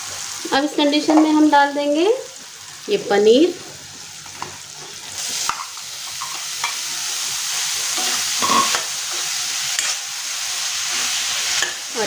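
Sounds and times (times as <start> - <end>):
cheese sizzling in a pan: 0.0 - 12.0
metal spatula scraping a pan: 4.8 - 10.0, 10.8 - 11.8.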